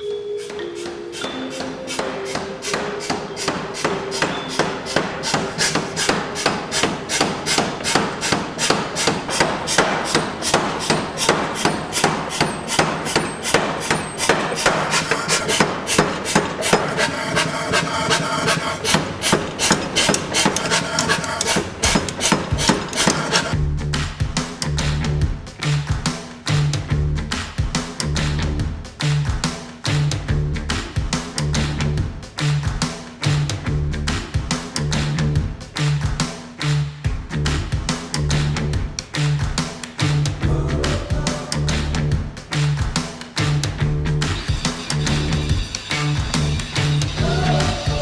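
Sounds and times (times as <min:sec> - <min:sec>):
power hammer striking hot steel: 0:00.4 - 0:23.6.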